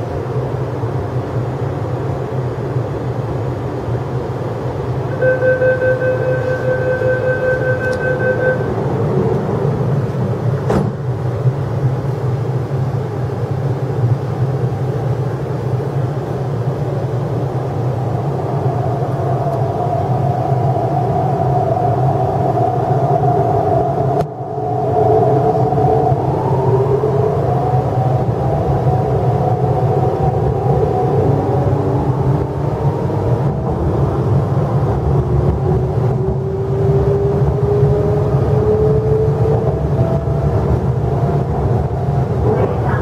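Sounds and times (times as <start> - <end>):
standing train hum: 0.0 - 43.0
door-closing warning tone: 5.1 - 8.9
train motor whine: 5.1 - 9.6
train doors shutting knock: 10.6 - 11.1.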